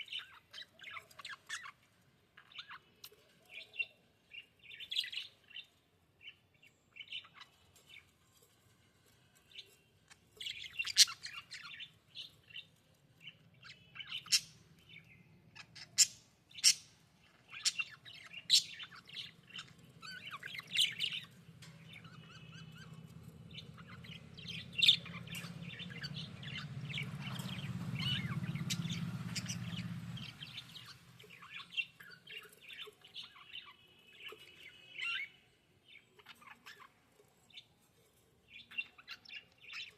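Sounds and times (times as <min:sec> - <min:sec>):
budgerigars chirping: 0:00.0 - 0:01.8, 0:10.4 - 0:12.6, 0:13.2 - 0:35.4
low steady hum: 0:17.0 - 0:32.8.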